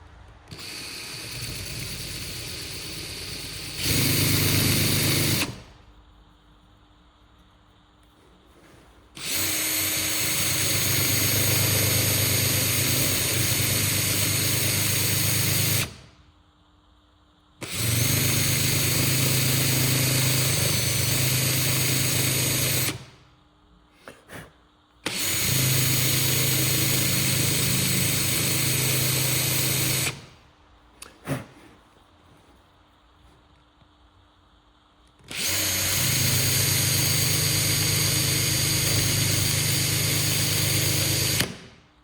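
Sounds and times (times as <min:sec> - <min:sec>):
electric drill running: 0:00.5 - 0:05.6, 0:09.2 - 0:16.0, 0:17.6 - 0:23.1, 0:25.1 - 0:30.3, 0:35.3 - 0:41.6.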